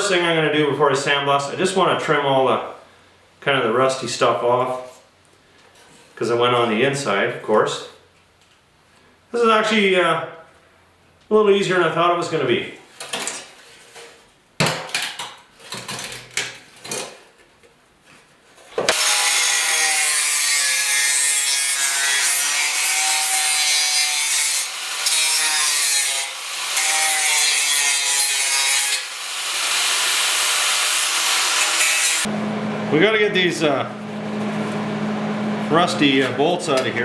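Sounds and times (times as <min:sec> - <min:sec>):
power tool grinding sheet steel: 0:18.9 - 0:32.3.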